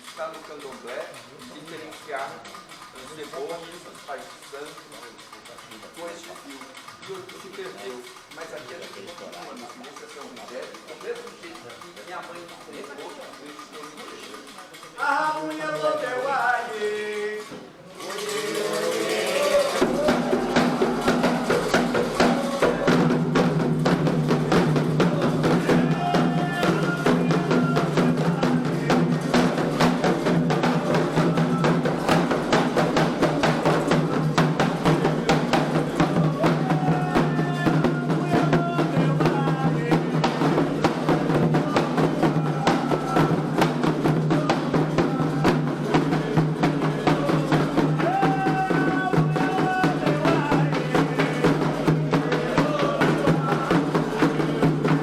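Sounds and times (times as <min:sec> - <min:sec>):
hand drums beating: 0:00.0 - 0:55.0
voices singing a chant: 0:15.0 - 0:55.0.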